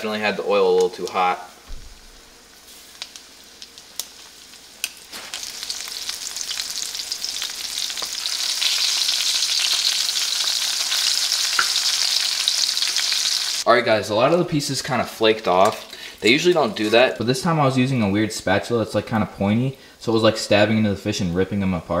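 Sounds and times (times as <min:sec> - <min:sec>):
fish sizzling in hot oil: 0:00.8 - 0:13.7.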